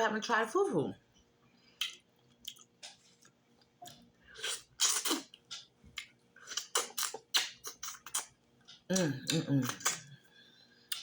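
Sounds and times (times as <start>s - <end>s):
chewing: 1.8s - 10.2s
lip smacks: 1.8s - 10.2s.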